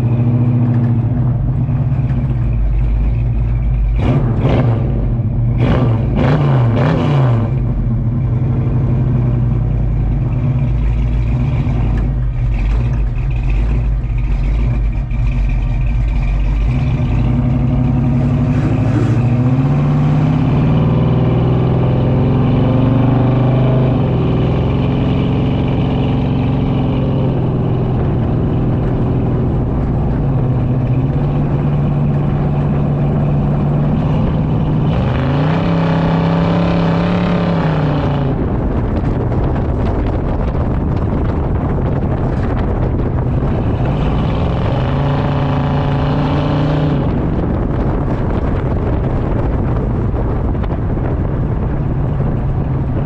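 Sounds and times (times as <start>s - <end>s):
car engine through exhaust: 0.0s - 53.0s.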